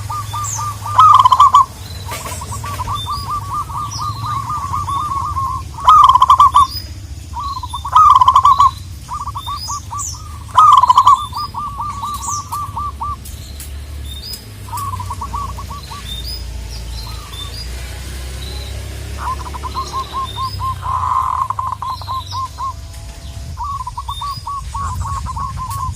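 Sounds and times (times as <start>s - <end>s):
doves staccato cooing: 0.0s - 25.9s
small birds chirping: 0.0s - 25.9s.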